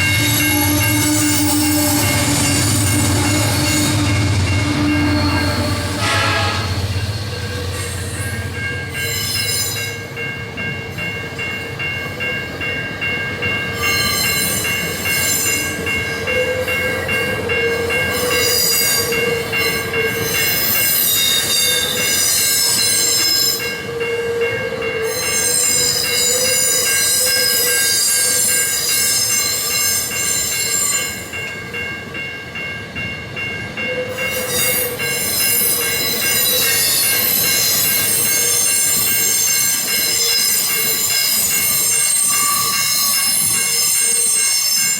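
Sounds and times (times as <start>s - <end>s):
high-pitched wheel squeal: 0.0s - 9.9s
train metallic ringing: 0.0s - 44.9s.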